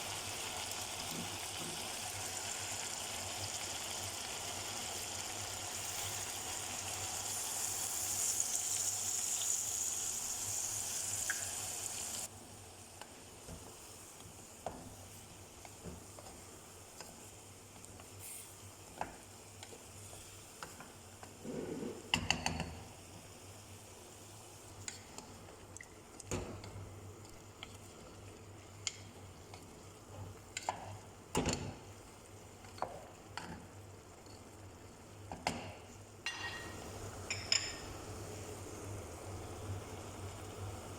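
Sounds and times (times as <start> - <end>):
chicken sizzling in a pot: 0.0 - 40.9.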